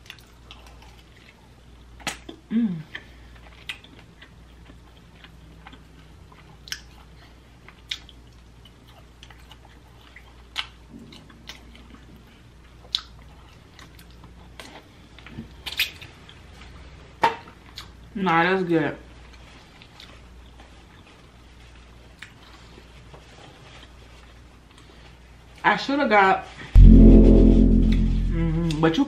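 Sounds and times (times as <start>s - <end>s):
chewing and lip smacks: 0.0s - 11.6s, 12.8s - 14.8s, 22.1s - 22.6s
brief hum: 26.8s - 28.8s.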